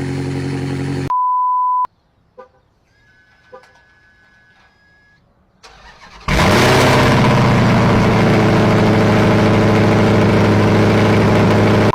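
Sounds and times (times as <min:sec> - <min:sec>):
engine idling loudly: 0:06.3 - 0:11.9.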